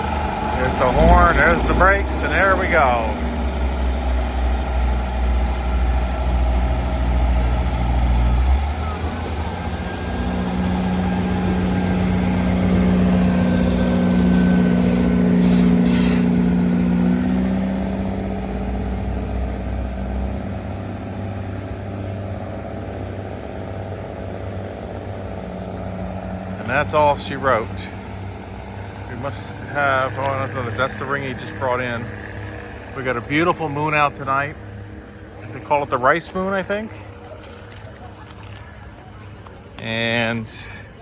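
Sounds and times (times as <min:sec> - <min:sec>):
diesel locomotive engine rumble: 0:00.0 - 0:41.0
short hisses: 0:14.8 - 0:16.4.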